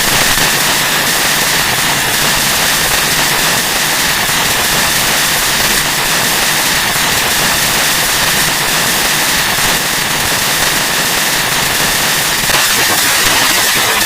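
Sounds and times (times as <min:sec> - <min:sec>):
harsh noise music: 0:12.4 - 0:14.0.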